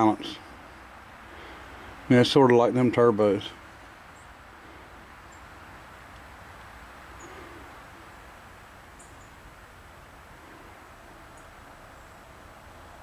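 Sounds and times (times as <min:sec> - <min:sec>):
outdoor background hiss: 0:00.0 - 0:13.0
soft low hoot: 0:07.1 - 0:08.2.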